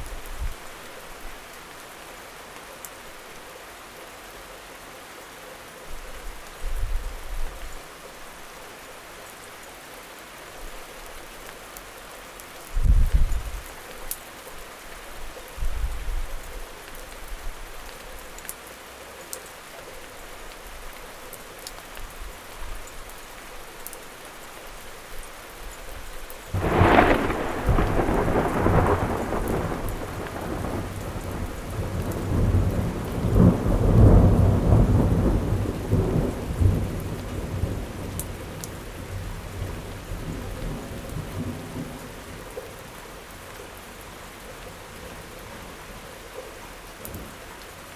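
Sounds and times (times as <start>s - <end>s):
steady rain falling: 0.0s - 47.9s
rumbling thunder: 26.5s - 38.2s.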